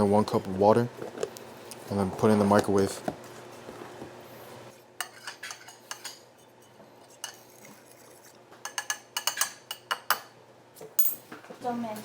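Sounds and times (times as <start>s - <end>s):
utensils and dishes clinking: 5.0s - 10.3s.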